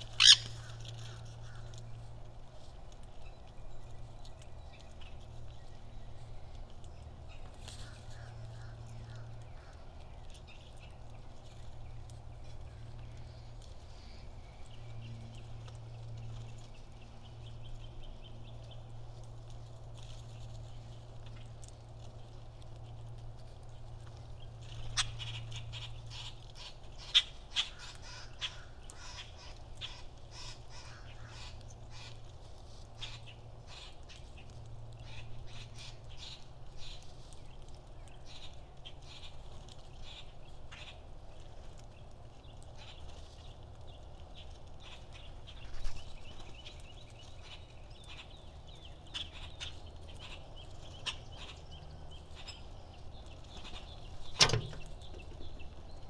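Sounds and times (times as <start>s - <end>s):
louder bird calls: 0.0s - 1.8s
birds chipping and clicking: 0.0s - 56.0s.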